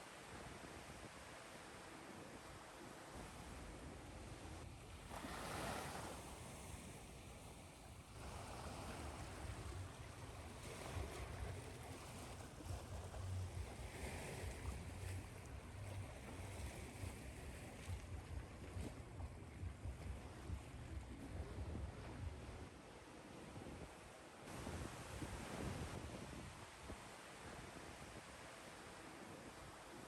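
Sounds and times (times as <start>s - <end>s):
ocean waves washing on shore: 0.2s - 30.0s
low rumble: 14.6s - 22.7s.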